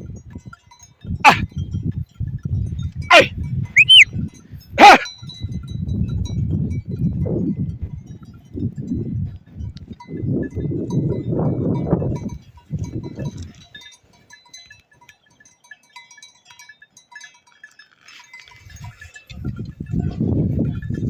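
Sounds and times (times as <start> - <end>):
wind buffeting microphone: 0.0 - 13.8, 18.6 - 21.0
livestock bells tinkling: 0.0 - 21.0.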